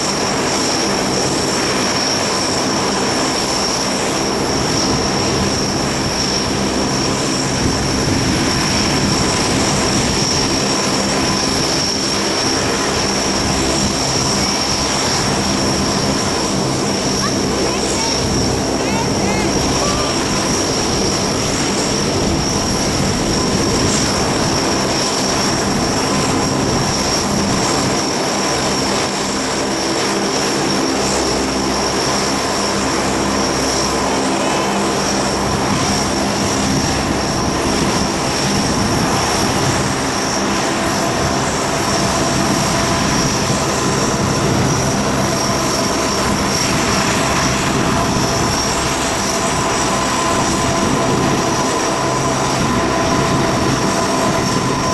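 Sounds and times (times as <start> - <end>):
high-pitched engine whine: 0.0 - 54.9
propeller roar: 19.5 - 40.6.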